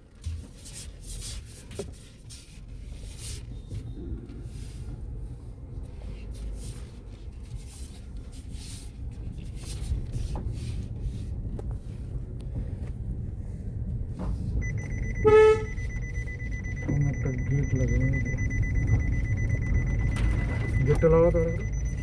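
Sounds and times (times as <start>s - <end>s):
vehicle engine low rumble: 0.0s - 22.0s
loud horn-like tone: 15.0s - 16.0s.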